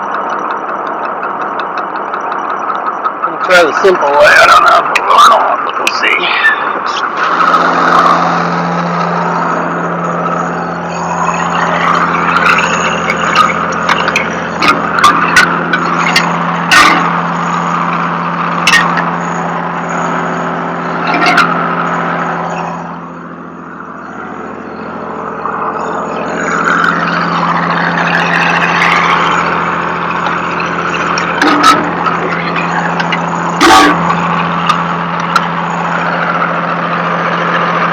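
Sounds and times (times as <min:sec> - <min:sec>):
truck engine running: 0:00.0 - 0:37.9
metallic clanks and knocks: 0:11.5 - 0:19.2, 0:26.4 - 0:35.5.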